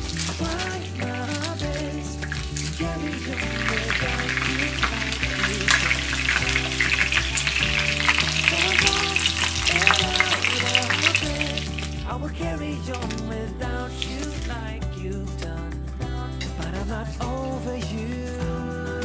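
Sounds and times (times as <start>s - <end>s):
food frying in hot oil: 0.0s - 12.0s
background music: 0.0s - 19.0s.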